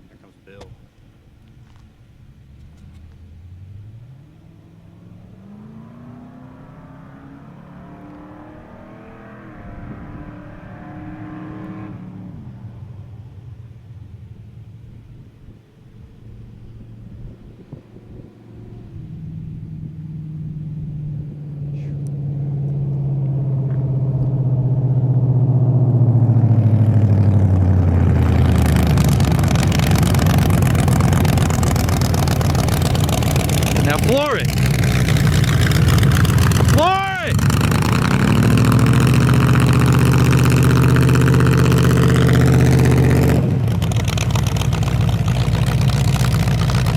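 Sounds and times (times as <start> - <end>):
truck engine accelerating: 2.2 - 15.1, 16.2 - 46.9
harsh rushing noise: 26.3 - 46.9.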